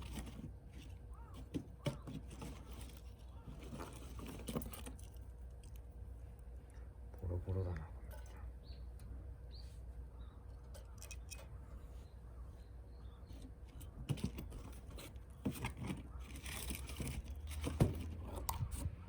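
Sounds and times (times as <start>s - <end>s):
dry material crunching and snapping: 0.0s - 6.8s, 14.0s - 18.8s.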